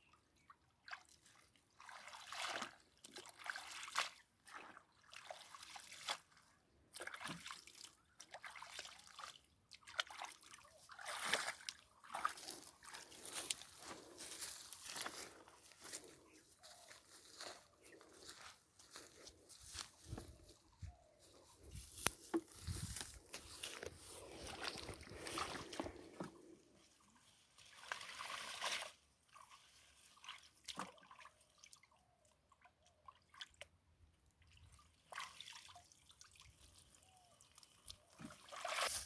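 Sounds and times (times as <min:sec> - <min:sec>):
water sloshing and trickling: 0:00.1 - 0:39.0
water splashes: 0:23.5 - 0:26.6, 0:27.6 - 0:31.7.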